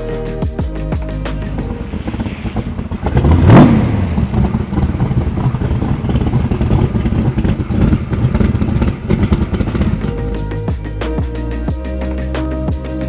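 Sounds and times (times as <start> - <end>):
car engine revving and rumbling: 1.2 - 10.5.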